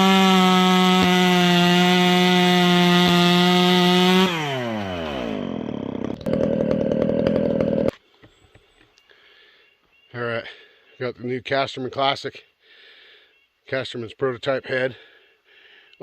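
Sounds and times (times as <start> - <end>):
chainsaw engine revving: 0.0 - 7.9.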